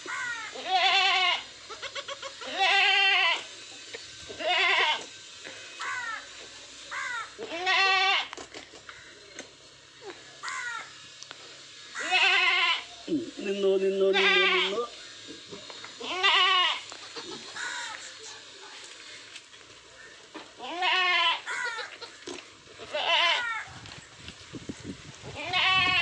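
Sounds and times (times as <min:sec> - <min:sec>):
goats bleating: 0:00.0 - 0:03.5, 0:04.3 - 0:05.1, 0:06.9 - 0:08.4, 0:12.0 - 0:18.1, 0:20.1 - 0:23.7, 0:25.3 - 0:26.0.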